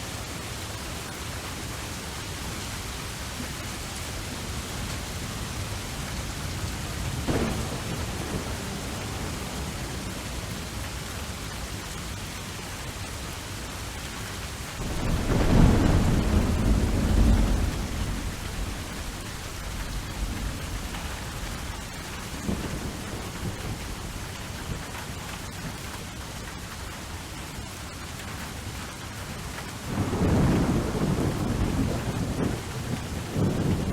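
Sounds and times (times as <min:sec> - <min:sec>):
steady rain: 0:00.0 - 0:33.9
low rumble of thunder: 0:03.3 - 0:12.6, 0:14.8 - 0:25.7, 0:29.8 - 0:33.9
thunder clap: 0:07.1 - 0:10.8, 0:14.8 - 0:24.0, 0:29.9 - 0:33.9.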